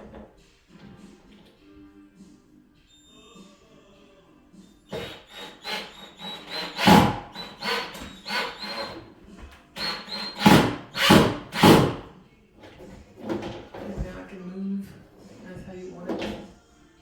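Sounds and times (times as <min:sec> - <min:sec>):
cordless drill whining in bursts: 0:04.9 - 0:09.0, 0:09.8 - 0:11.8.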